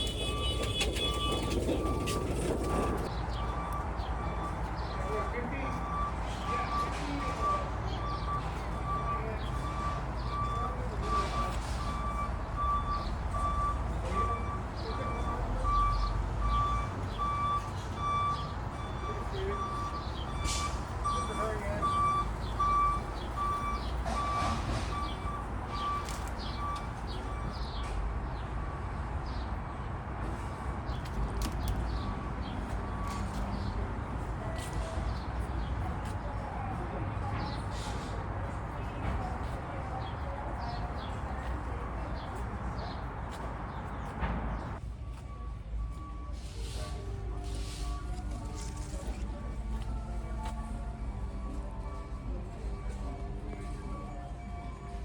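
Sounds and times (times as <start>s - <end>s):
backup alarm beeping: 0.0s - 27.6s
faint indistinct voices: 33.1s - 55.0s.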